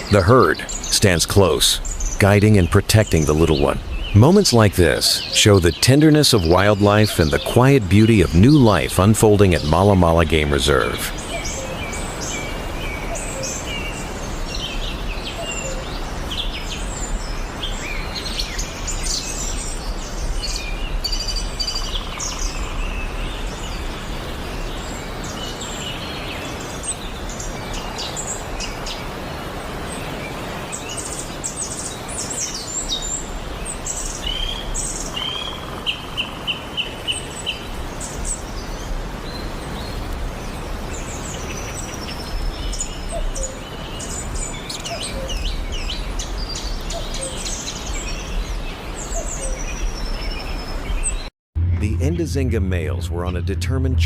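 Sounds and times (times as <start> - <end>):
low background noise: 0.0 - 15.1
wild birds chirping: 0.0 - 51.3.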